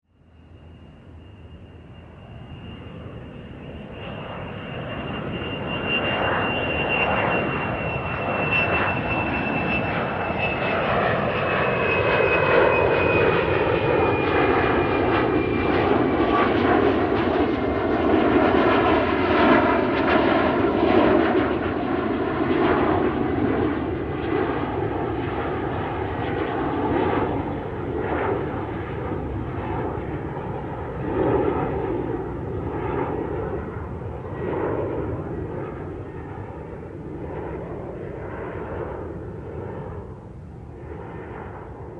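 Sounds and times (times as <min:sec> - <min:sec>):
aeroplane engine noise: 0:00.1 - 0:41.9
high whine falling in pitch: 0:00.3 - 0:09.6.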